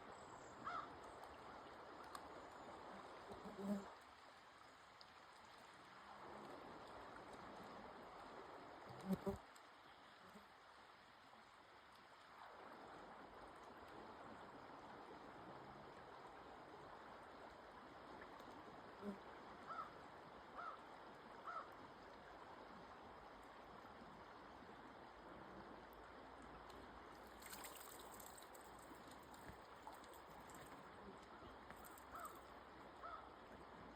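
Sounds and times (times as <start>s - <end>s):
flowing stream water: 0.0s - 33.9s.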